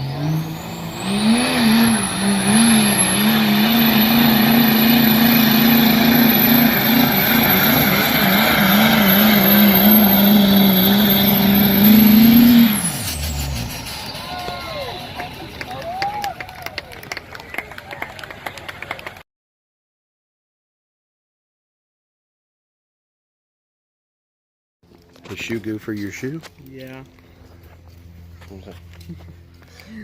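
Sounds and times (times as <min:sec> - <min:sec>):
high whine: 0:00.0 - 0:16.2
truck engine at full throttle: 0:00.0 - 0:19.2.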